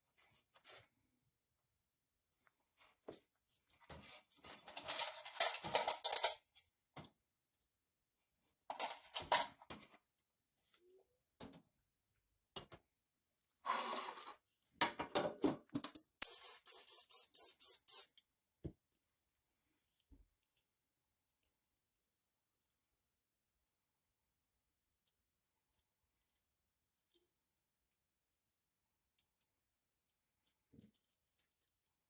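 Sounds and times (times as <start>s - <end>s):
light clattering of parts: 3.9s - 6.6s, 8.7s - 9.9s
scrubbing small parts: 4.3s - 6.6s, 8.7s - 9.7s.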